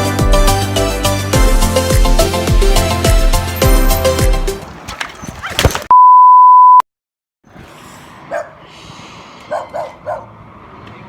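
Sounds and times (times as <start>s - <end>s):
loud steady beep: 5.9s - 6.8s.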